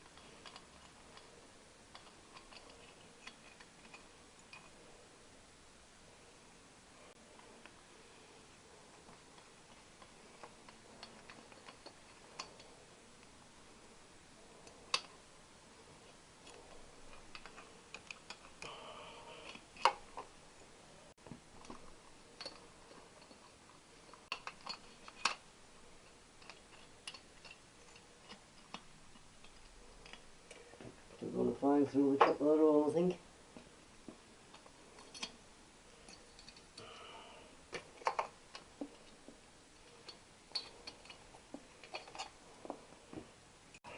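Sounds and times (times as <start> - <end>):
hand tools clicking on metal: 1.9 - 4.8, 39.9 - 42.4.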